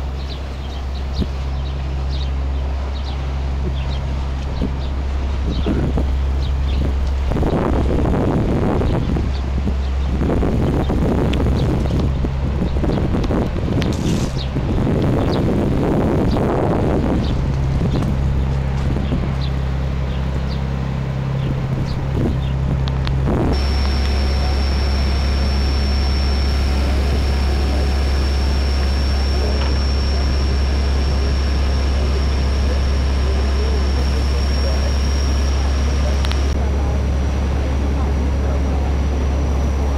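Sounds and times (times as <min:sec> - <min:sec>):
boat engine hum: 0:00.0 - 0:39.9
thin high whine: 0:23.1 - 0:39.9.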